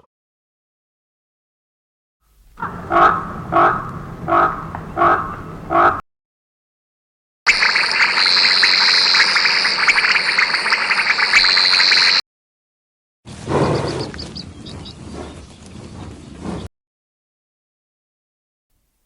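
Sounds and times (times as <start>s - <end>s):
frog croaking: 2.6s - 6.0s, 7.5s - 12.2s
high-pitched pulsing buzzing chorus: 7.5s - 12.2s.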